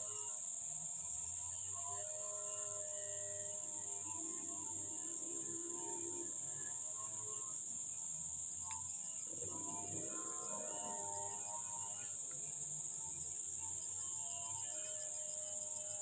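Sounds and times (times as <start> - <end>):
high-pitched insect trill: 0.0 - 16.0
soft background music: 8.8 - 14.4.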